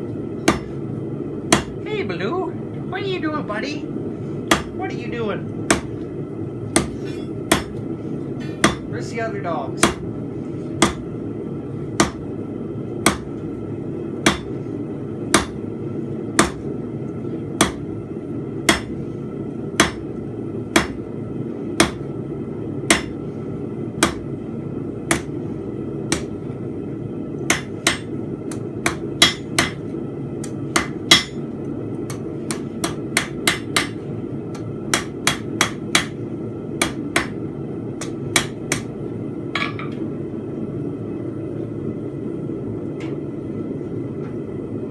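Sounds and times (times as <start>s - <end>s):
steady low hum: 0.0s - 44.9s
hammer striking steel on anvil: 0.4s - 0.7s, 1.5s - 1.8s, 4.5s - 4.8s, 6.8s - 7.8s, 8.6s - 8.9s, 9.8s - 10.0s, 12.0s - 12.2s, 13.1s - 13.3s, 14.3s - 14.5s, 15.3s - 15.6s, 16.4s - 16.6s, 17.6s - 17.8s, 18.7s - 18.9s, 19.8s - 20.0s, 20.7s - 21.0s, 21.8s - 22.1s, 22.9s - 23.2s, 24.0s - 24.2s, 25.1s - 25.3s, 27.5s - 29.8s, 30.4s - 31.4s, 32.1s - 34.0s, 34.9s - 36.2s, 36.8s - 37.4s, 38.0s - 38.9s.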